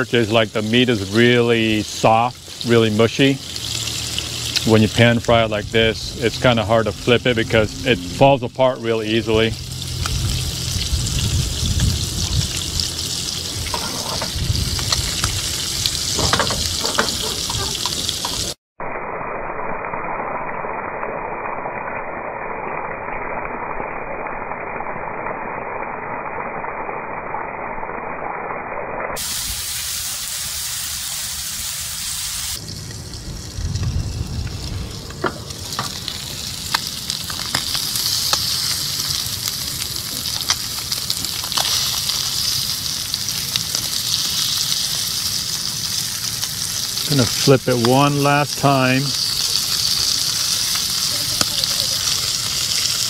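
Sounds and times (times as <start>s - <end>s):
fish fillets sizzling in a pan: 0.0s - 7.3s, 9.0s - 18.6s, 29.2s - 53.0s
spatula scraping and tapping pan: 13.7s - 15.0s, 16.2s - 18.5s.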